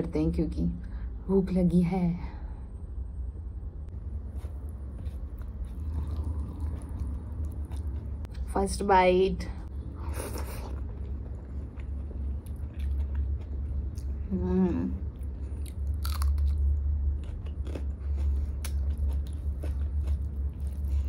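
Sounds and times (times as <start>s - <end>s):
person chewing food: 4.2s - 8.4s, 10.3s - 14.3s, 15.1s - 21.0s.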